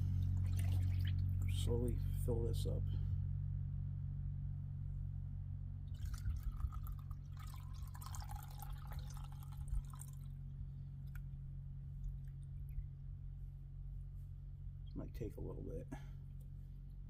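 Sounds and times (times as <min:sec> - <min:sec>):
steady low hum: 0:00.0 - 0:17.0
liquid dripping and trickling: 0:00.1 - 0:01.6, 0:05.9 - 0:10.4.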